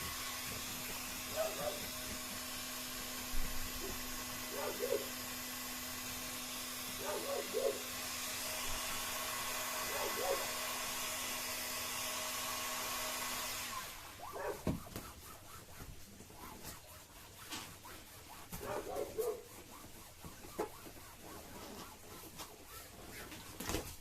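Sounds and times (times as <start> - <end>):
heat gun blowing: 0.0 - 24.0.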